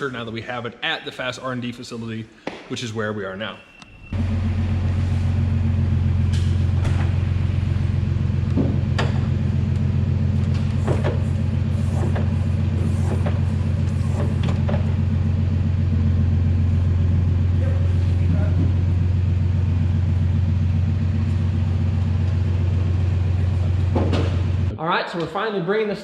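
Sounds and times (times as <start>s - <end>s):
large vehicle engine idling: 4.1s - 24.7s.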